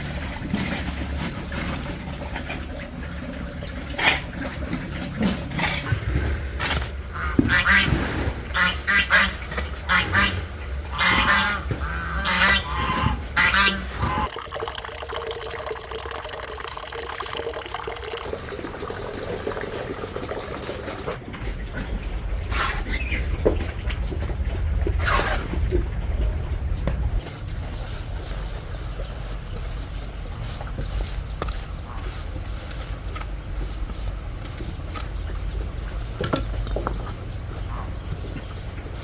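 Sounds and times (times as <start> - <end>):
farm animals calling: 7.1 - 14.3, 17.4 - 21.2.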